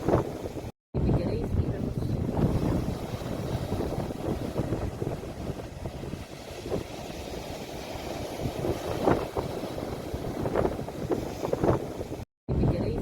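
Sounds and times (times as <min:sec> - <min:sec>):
sea waves washing ashore: 0:00.0 - 0:13.0.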